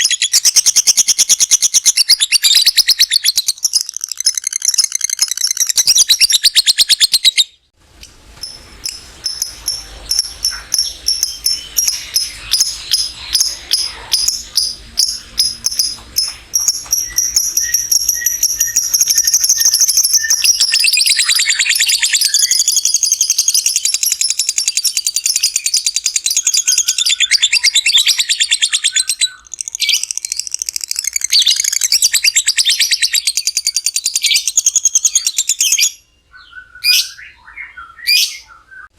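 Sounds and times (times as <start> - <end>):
lovebird trilling chatter: 0.0 - 7.5, 8.8 - 23.4.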